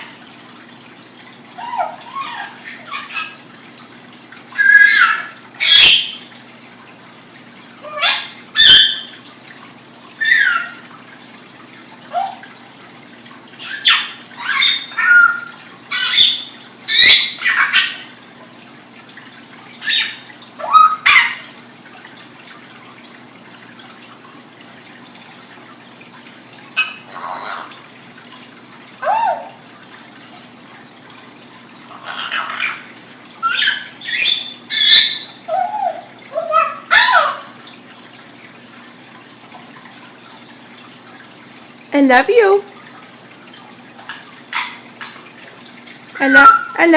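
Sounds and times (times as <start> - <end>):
pet bird chirping and squawking: 1.6 - 3.4, 4.6 - 6.2, 7.8 - 9.1, 10.2 - 10.8, 13.6 - 18.2, 19.8 - 21.5, 26.8 - 27.8, 29.0 - 29.6, 31.9 - 37.6, 46.2 - 46.9.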